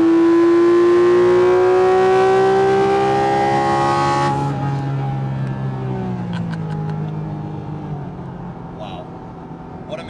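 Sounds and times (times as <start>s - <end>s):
sports car engine revving: 0.0s - 5.2s.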